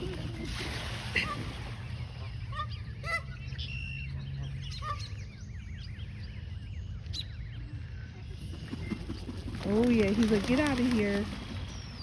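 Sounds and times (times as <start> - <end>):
geese honking: 2.2 - 3.4.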